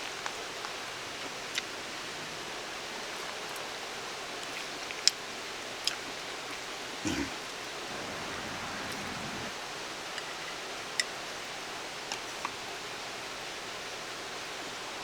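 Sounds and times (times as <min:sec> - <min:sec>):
stream rushing: 0:07.0 - 0:09.6.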